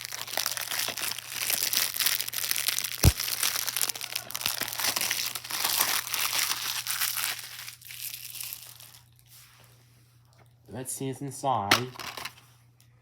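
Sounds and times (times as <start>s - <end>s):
plastic wrap crackling: 0.0s - 9.2s.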